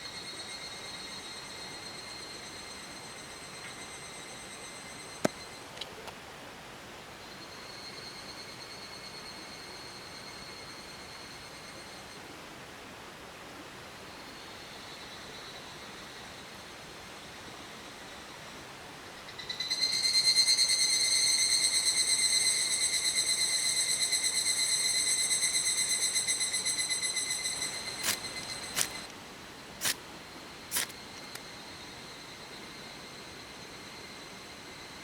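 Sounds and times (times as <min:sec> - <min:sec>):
insect buzzing trill: 0:19.5 - 0:29.1, 0:30.7 - 0:31.4
steady hiss: 0:25.0 - 0:34.8.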